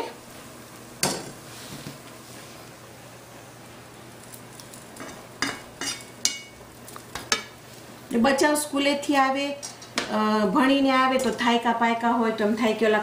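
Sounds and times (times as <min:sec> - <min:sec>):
quesadilla sizzling in a pan: 0:00.0 - 0:08.8.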